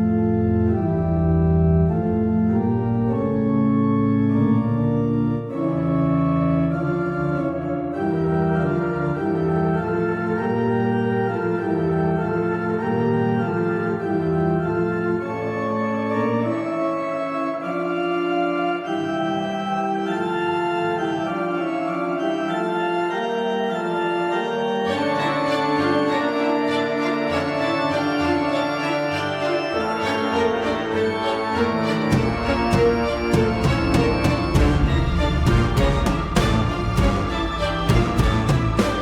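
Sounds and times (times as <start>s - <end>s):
organ-like keyboard chords: 0.0s - 39.0s
bass line: 31.7s - 39.0s.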